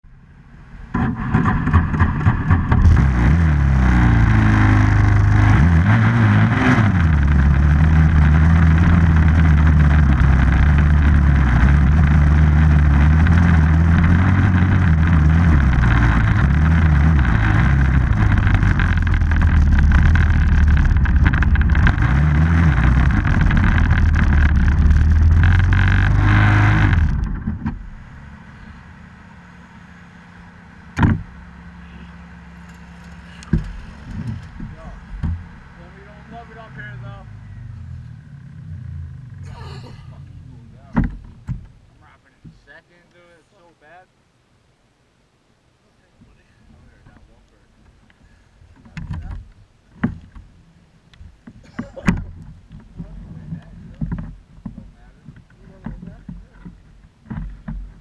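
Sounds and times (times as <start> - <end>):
off-road vehicle engine revving: 0.6 - 42.2.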